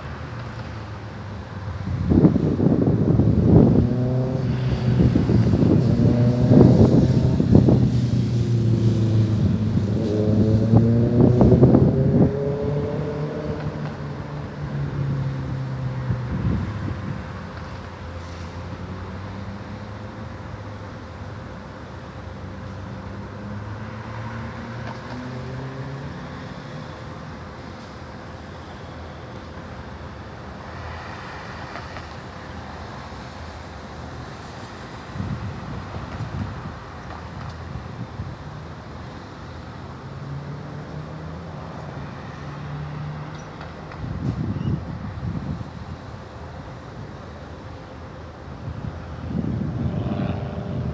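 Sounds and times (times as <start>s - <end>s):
aircraft engine drone overhead: 0.0s - 23.3s, 26.3s - 50.9s
distant traffic: 0.0s - 50.9s
wind buffets on microphone: 1.7s - 17.9s, 35.0s - 39.2s, 43.9s - 46.3s, 48.5s - 50.9s.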